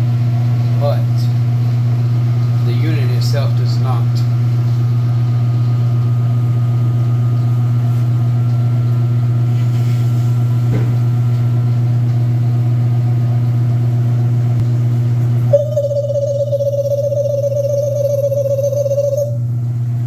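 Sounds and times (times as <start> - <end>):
washing machine humming: 0.0 - 20.0
steady high tone: 15.5 - 19.4.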